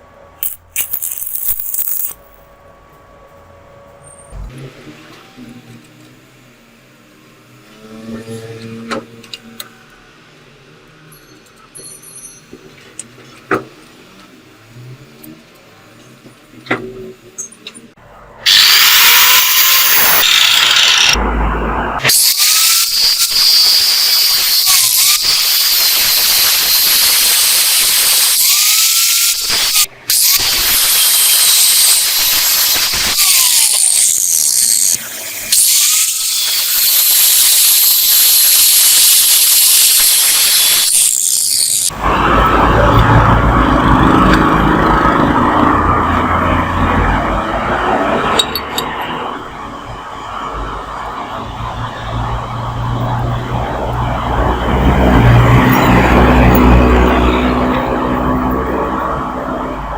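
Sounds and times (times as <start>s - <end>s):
power tool grinding metal: 18.5s - 21.2s, 22.0s - 42.0s.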